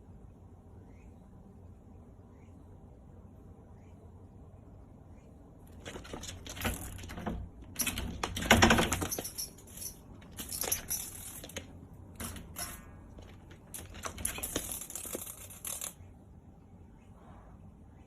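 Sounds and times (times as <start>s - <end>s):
cat scratching mesh screen: 5.7s - 16.0s.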